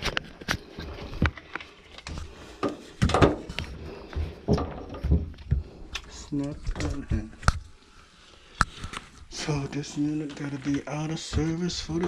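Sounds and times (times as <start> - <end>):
knocks and clunks of machine parts: 2.6 - 5.6.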